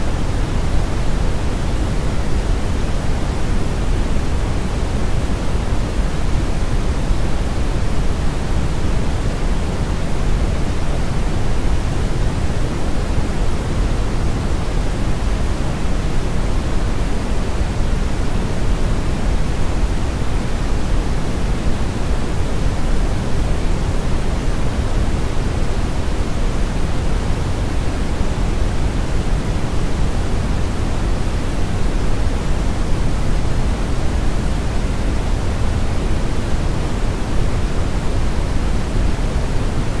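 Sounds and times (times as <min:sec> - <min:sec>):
brown noise: 0:00.0 - 0:40.0.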